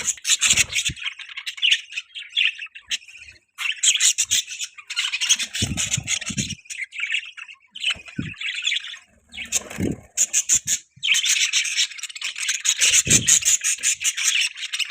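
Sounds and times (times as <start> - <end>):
budgerigars chattering and chirping: 0.0 - 14.9.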